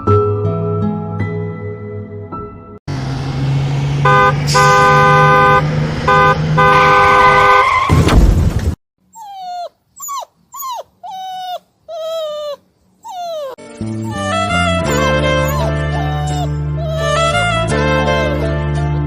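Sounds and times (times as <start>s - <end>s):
engine and road noise: 2.9s - 19.0s
car horn honking: 4.0s - 7.9s
puppy whimpering and yelping: 9.1s - 18.4s.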